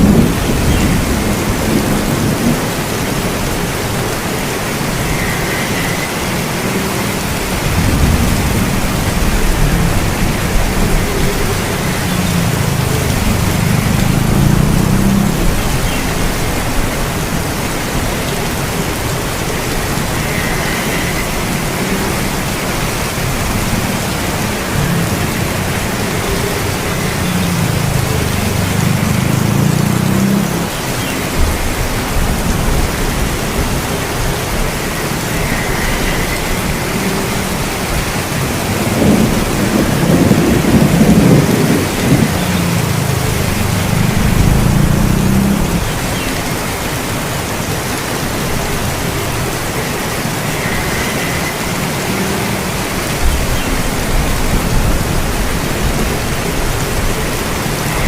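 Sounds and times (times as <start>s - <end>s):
rolling thunder: 0.0s - 4.3s, 7.2s - 30.6s, 35.4s - 46.2s
steady rain: 0.0s - 58.0s.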